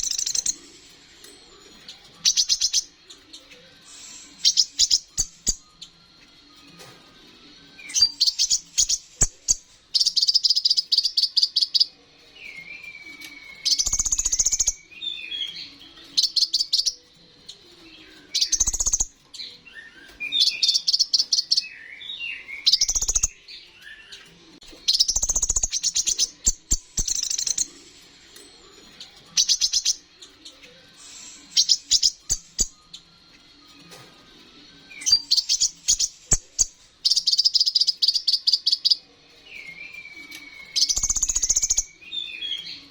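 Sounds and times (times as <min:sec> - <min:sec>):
bird warbled whistling: 0:00.0 - 0:00.6, 0:39.7 - 0:42.9
bird chattering trills: 0:00.0 - 0:00.7, 0:13.5 - 0:14.9, 0:18.4 - 0:19.2, 0:24.9 - 0:27.7, 0:31.0 - 0:32.8, 0:40.7 - 0:42.9.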